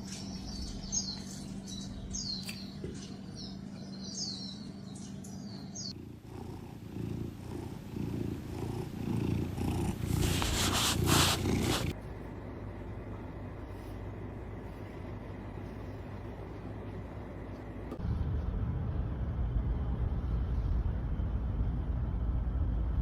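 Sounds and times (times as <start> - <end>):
cat purring: 2.9 - 18.0
scratchy noise burst: 9.6 - 12.0.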